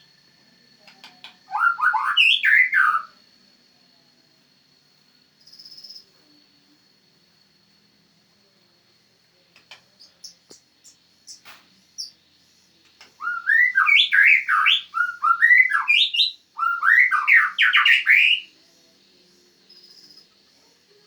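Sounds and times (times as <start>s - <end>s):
bird singing whistled phrases: 1.5s - 3.2s, 10.0s - 12.2s, 13.2s - 18.5s
soft bird chips: 9.6s - 12.2s.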